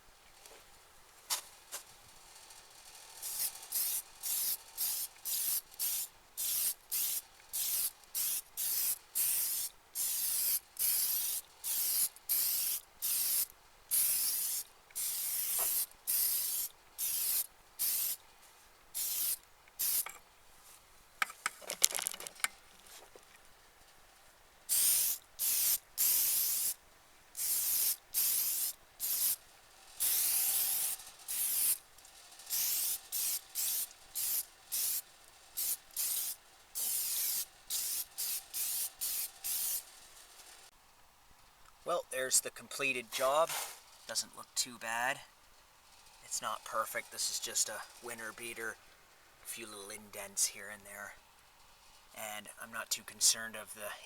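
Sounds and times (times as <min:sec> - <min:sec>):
aerosol spray hissing: 0:03.2 - 0:18.2, 0:19.0 - 0:20.1, 0:24.7 - 0:26.8, 0:27.4 - 0:29.4, 0:30.0 - 0:31.8, 0:32.5 - 0:39.9.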